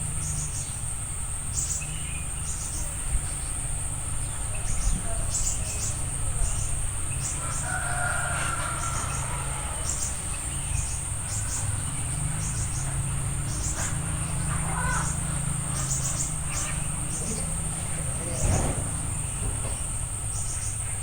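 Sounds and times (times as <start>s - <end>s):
insects droning: 0.0s - 21.0s
faint bird calls: 4.4s - 21.0s.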